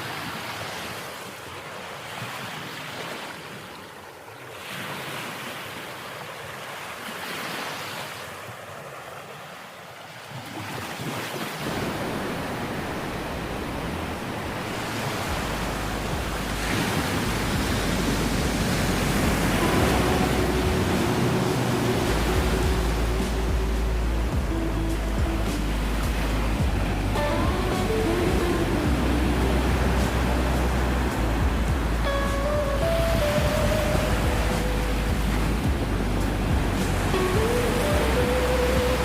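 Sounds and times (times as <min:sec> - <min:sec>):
ocean surf breaking: 0:10.4 - 0:39.0
wind buffeting microphone: 0:11.7 - 0:39.0.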